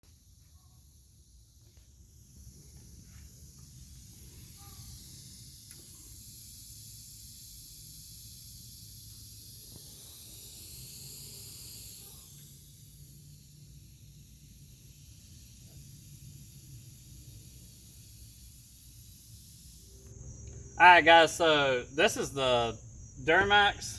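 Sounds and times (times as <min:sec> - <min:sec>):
steady hiss: 0:00.1 - 0:20.2.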